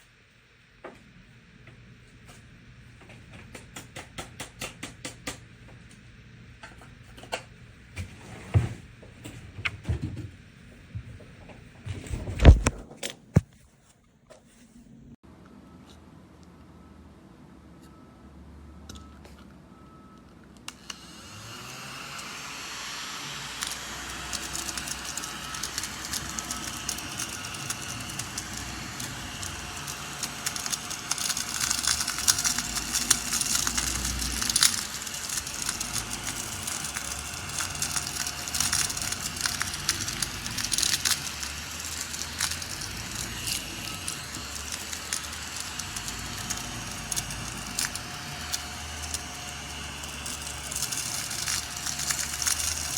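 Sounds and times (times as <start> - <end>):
small vacuum cleaner whining: 20.7 - 52.9
crackling and rattling: 23.4 - 52.9.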